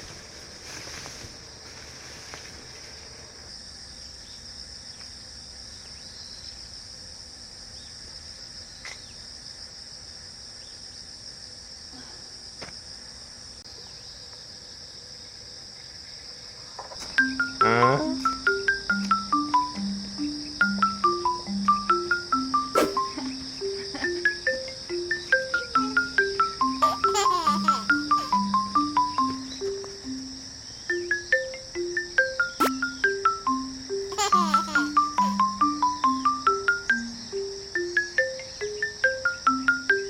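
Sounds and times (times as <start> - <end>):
insects chirping chorus: 0.0 - 40.0
plucked marimba-like music: 17.2 - 40.0.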